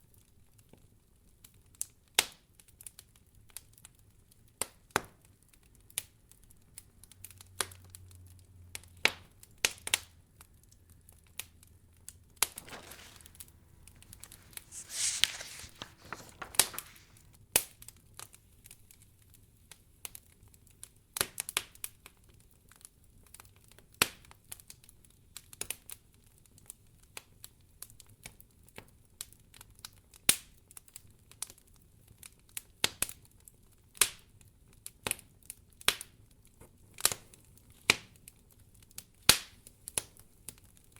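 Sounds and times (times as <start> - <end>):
wood fire crackling: 12.4 - 17.4.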